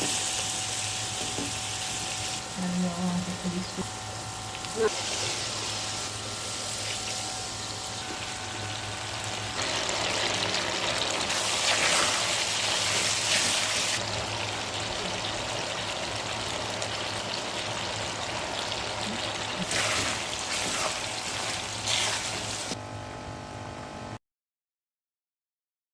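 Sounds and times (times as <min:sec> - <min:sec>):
chicken and onions sizzling in a pan: 0:00.0 - 0:02.5, 0:04.7 - 0:22.8.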